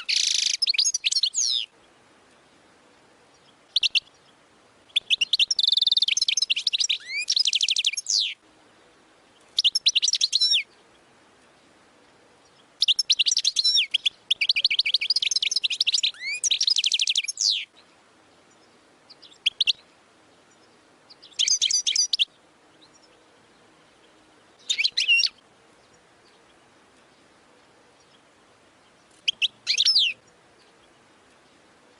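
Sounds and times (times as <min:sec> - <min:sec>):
goldfinch twittering song: 0:00.0 - 0:02.6, 0:03.2 - 0:08.4, 0:09.4 - 0:11.7, 0:12.4 - 0:31.9.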